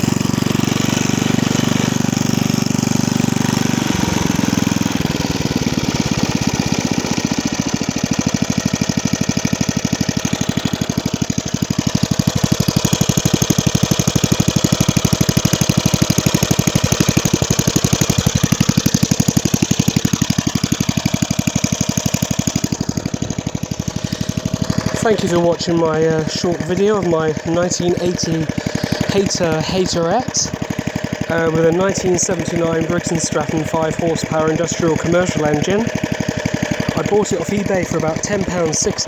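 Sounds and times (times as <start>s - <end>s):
lawn mower engine running: 0.0s - 39.0s.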